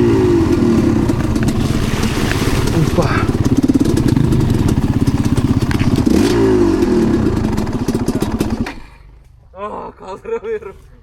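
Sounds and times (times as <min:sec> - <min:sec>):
dirt bike engine running hard: 0:00.0 - 0:09.1.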